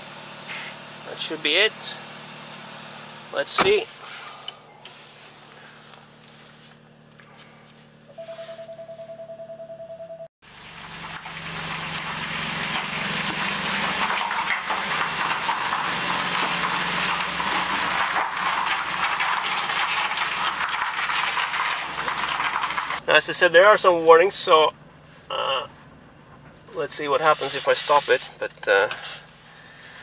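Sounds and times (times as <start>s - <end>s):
car engine starting and idling: 0.0s - 9.2s, 10.4s - 30.0s
car warning chime beeping: 8.1s - 10.3s.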